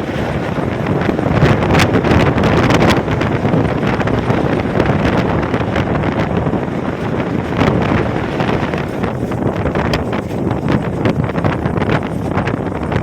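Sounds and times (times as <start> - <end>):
rustling gusts: 0.0 - 13.0
wind buffeting microphone: 0.0 - 13.0.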